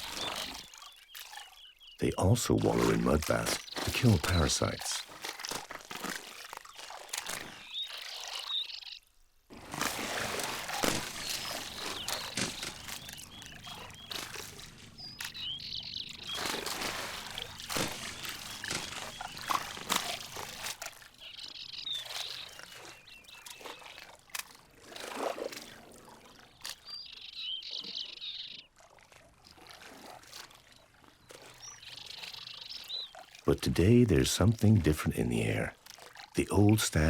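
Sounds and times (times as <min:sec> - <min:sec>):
small birds chirping: 0:00.0 - 0:05.2, 0:07.4 - 0:09.1, 0:10.9 - 0:23.9, 0:26.6 - 0:28.7, 0:31.2 - 0:35.8, 0:36.4 - 0:37.0
mud and water sloshing: 0:00.0 - 0:08.8, 0:09.5 - 0:27.9, 0:28.6 - 0:37.0.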